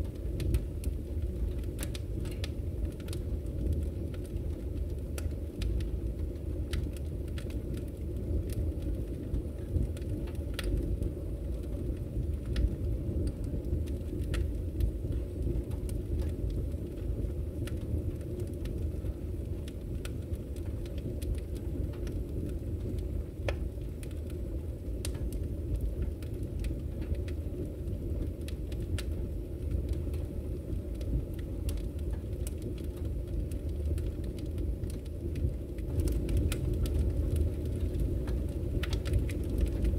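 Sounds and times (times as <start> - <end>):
fire crackles and pops: 0.0 - 39.9
low rumble of flames: 0.0 - 39.9.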